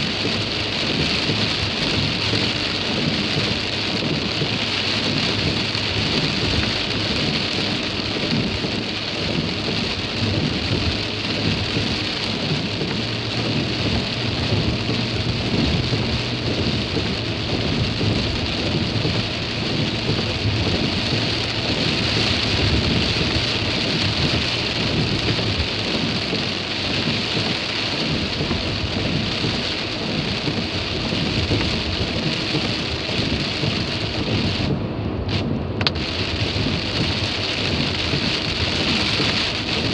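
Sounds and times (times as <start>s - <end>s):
rain on a moving car: 0.0s - 39.9s.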